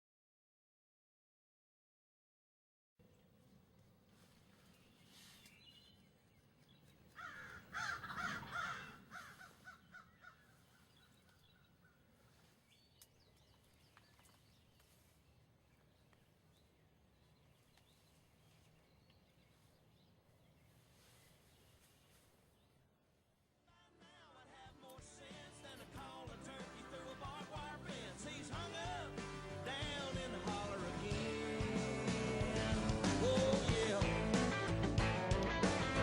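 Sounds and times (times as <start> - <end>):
bird harsh rattling calls: 6.9 - 12.0.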